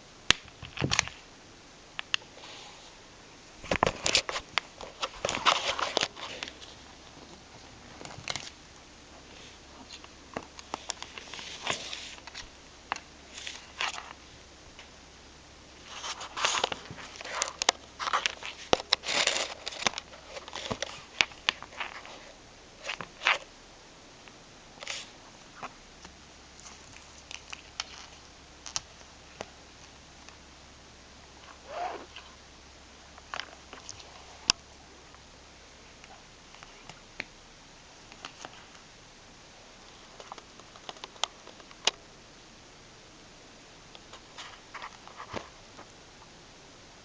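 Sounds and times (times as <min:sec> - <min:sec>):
cat scratching and rustling: 0:15.8 - 0:23.5.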